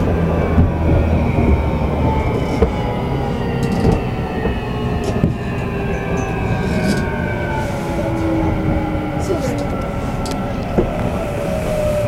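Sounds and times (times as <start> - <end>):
wheels knocking on rail joints: 0.0 - 7.2
traction motor whine: 0.0 - 12.0
train wheels rumbling on rails: 0.0 - 12.0.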